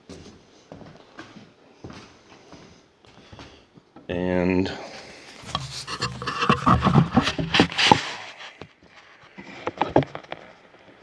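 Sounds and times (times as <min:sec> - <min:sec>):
gear being moved knocking: 0:05.0 - 0:08.5.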